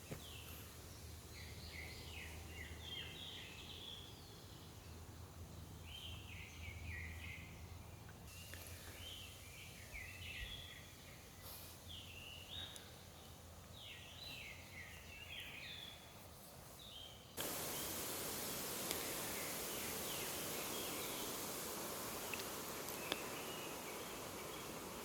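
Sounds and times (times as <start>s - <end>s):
faint forest ambience: 0.0s - 25.0s
loud steady hiss: 17.4s - 25.0s.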